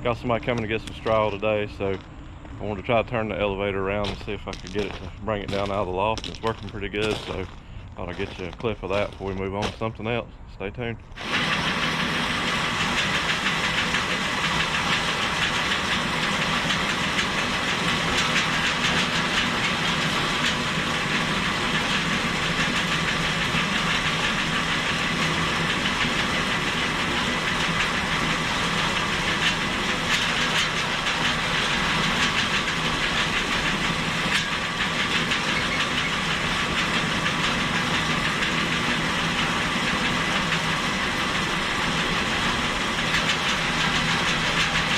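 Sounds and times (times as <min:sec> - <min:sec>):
chain conveyor rattling: 0:11.2 - 0:44.9.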